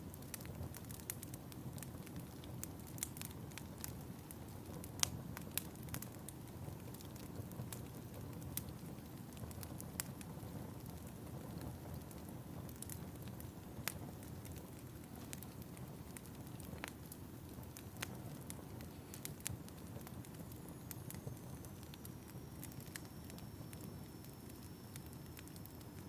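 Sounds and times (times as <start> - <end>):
fire crackling and popping: 0.0 - 26.0
low rumble of flames: 0.0 - 26.0.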